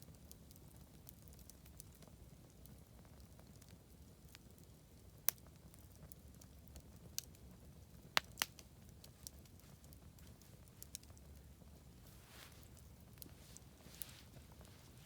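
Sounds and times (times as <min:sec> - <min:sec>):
bonfire crackling and popping: 0:00.0 - 0:15.0
low steady rumble: 0:09.5 - 0:15.0.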